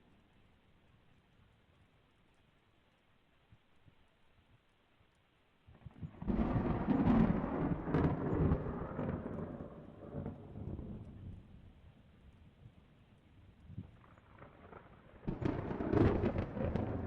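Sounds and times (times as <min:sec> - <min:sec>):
thunder rumbling and cracking: 0:06.1 - 0:11.6, 0:13.8 - 0:17.0.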